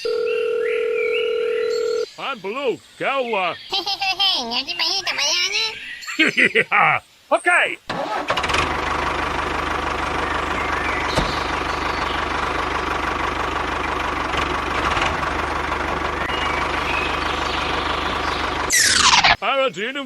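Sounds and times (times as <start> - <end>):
small engine idling: 7.9 - 19.3.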